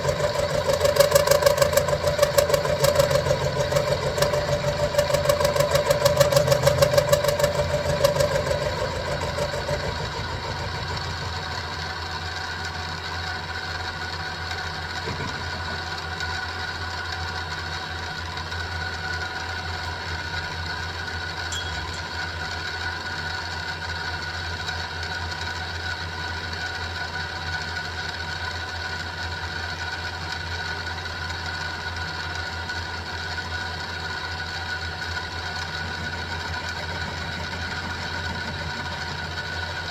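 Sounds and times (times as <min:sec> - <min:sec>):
milling machine cutting steel: 0:00.0 - 0:11.8, 0:35.0 - 0:39.9.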